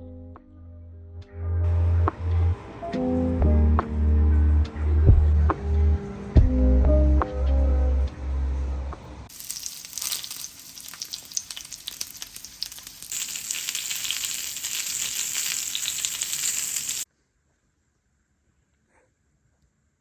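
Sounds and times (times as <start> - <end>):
heavy rain hissing: 9.3 - 17.0.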